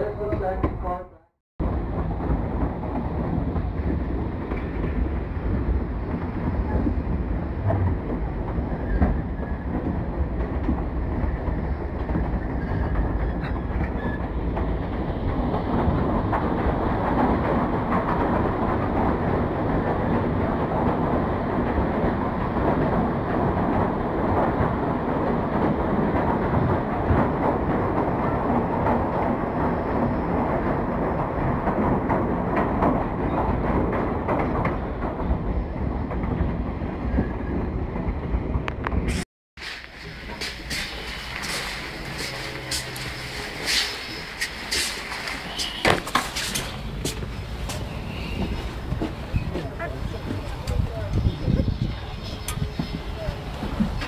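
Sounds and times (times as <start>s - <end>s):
rumble of train cars: 0.0s - 54.0s
train wheels clattering on rails: 1.6s - 54.0s.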